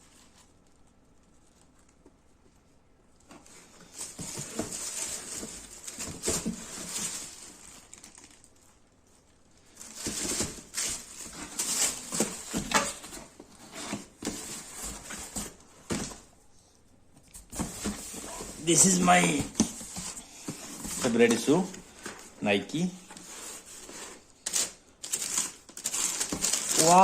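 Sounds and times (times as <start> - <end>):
shoe packaging crinkling: 3.2 - 13.4, 23.5 - 27.0.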